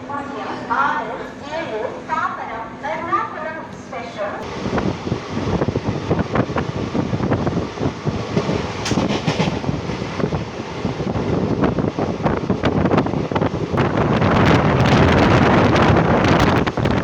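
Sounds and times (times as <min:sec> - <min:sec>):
train rumble: 0:00.0 - 0:17.0
wind buffeting microphone: 0:04.4 - 0:17.0
wheels clattering on rails: 0:08.3 - 0:10.3.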